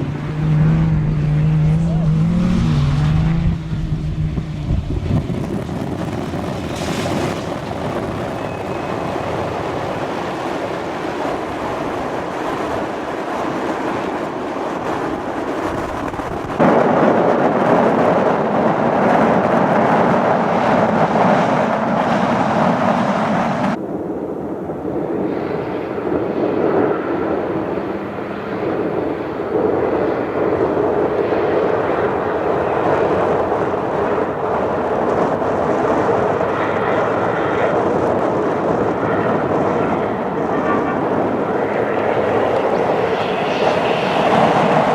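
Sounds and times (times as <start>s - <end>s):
truck engine at speed: 0.0s - 22.1s.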